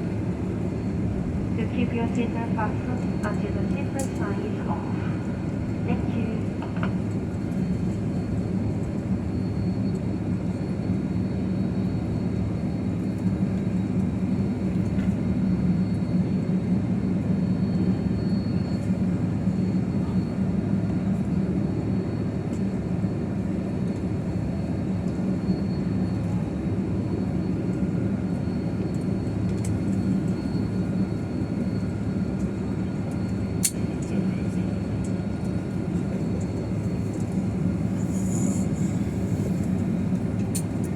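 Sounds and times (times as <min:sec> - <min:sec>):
jet engines idling: 0:00.0 - 0:40.9
cabin air system hum: 0:00.3 - 0:07.5.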